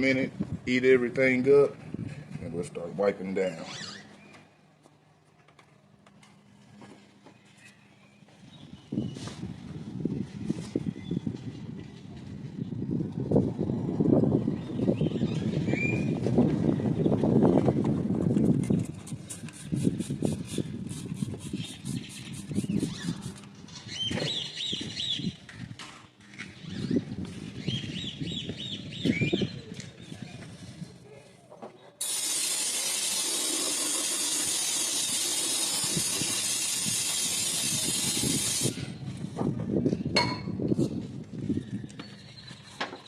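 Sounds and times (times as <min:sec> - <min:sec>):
short squeaks: 0:03.5 - 0:04.6
spray hissing: 0:32.0 - 0:38.7.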